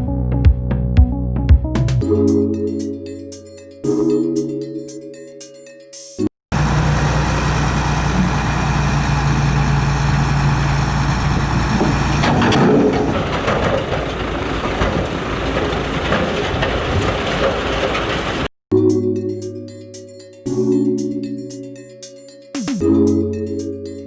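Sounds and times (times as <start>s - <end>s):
diesel machinery engine droning: 6.5s - 18.5s
machinery rumble and clatter: 6.5s - 18.5s.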